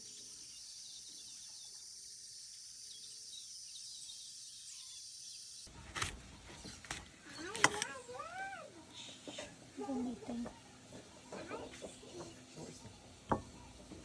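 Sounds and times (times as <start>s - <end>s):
faint bird chirps: 0.0s - 5.7s.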